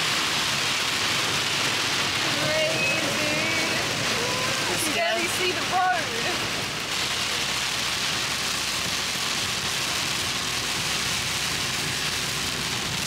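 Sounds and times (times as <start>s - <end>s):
heavy rain drumming on van: 0.0s - 13.0s
tyres on wet road: 0.0s - 13.0s
van engine hum: 0.0s - 13.0s.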